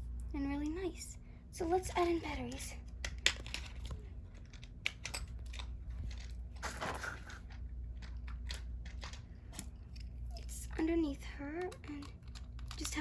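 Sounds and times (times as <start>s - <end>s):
plastic clicking and crinkling: 2.0s - 10.1s, 11.5s - 13.0s.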